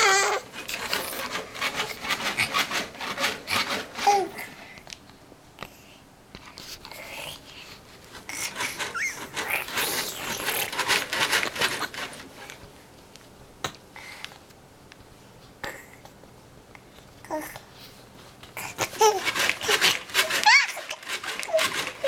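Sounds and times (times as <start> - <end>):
baby squeak: 8.8 - 9.3.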